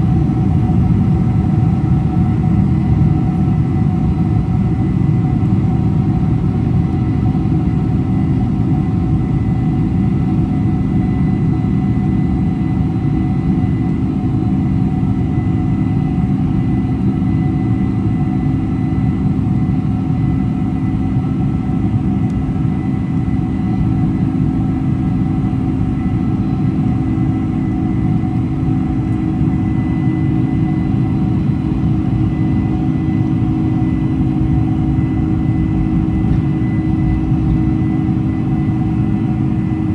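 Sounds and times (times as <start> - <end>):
airliner cabin rumble: 17.4 - 39.9
steady hums: 26.2 - 39.9.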